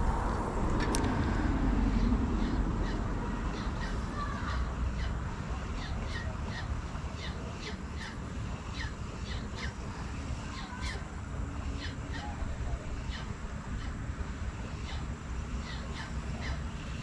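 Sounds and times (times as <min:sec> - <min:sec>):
low rumble: 0:00.0 - 0:03.8.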